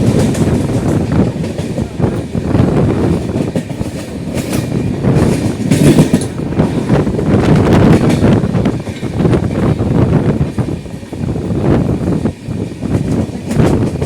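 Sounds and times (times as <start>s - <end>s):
wheels clattering over rails: 0.0s - 9.8s
train rumbling: 0.0s - 14.0s.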